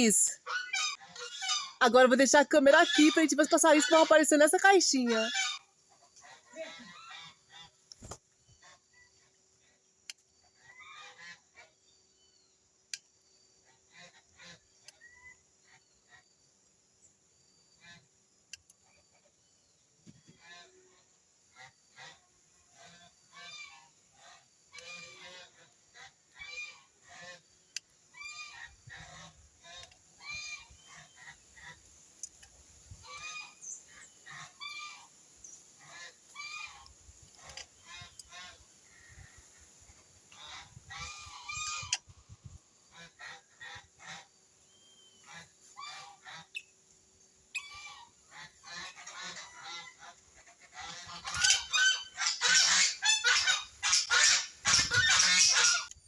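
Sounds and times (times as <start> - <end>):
birds calling harshly: 0.0 - 5.7, 47.6 - 56.0.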